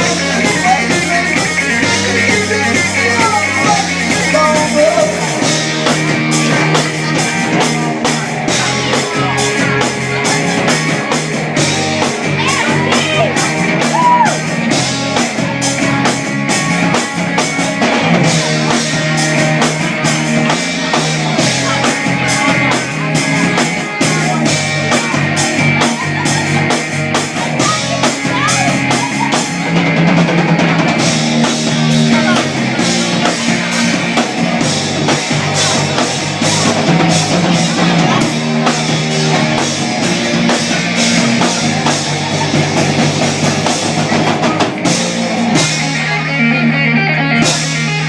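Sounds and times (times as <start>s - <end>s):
bass guitar: 0.0s - 48.0s
drum kit beat: 0.0s - 48.0s
electric guitar: 0.0s - 48.0s.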